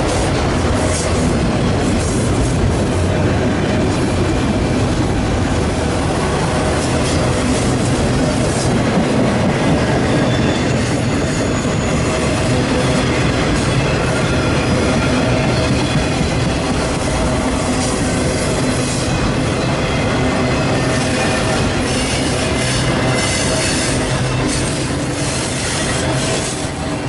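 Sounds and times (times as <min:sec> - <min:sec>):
train wheels rumbling and clacking: 0:00.0 - 0:27.0
high-pitched wheel squeals: 0:10.0 - 0:16.2.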